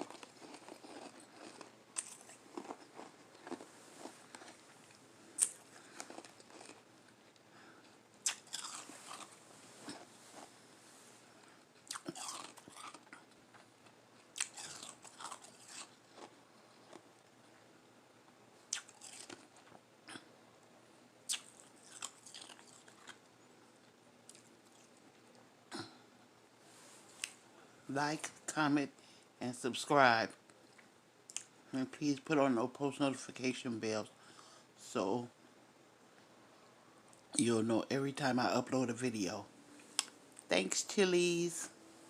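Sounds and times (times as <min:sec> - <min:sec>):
chewing crushed ice: 0:00.0 - 0:10.5, 0:11.8 - 0:17.3, 0:18.7 - 0:19.8, 0:21.3 - 0:25.3.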